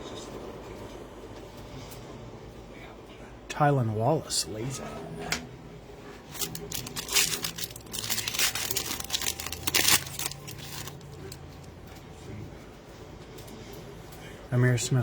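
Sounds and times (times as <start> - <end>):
plastic wrapper crinkling and tearing: 6.3 - 11.5.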